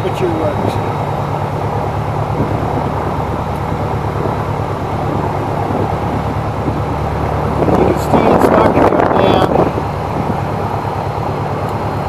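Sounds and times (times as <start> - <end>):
air-conditioning fan blowing: 0.0 - 12.0
aircraft engine and propeller drone: 0.0 - 12.0.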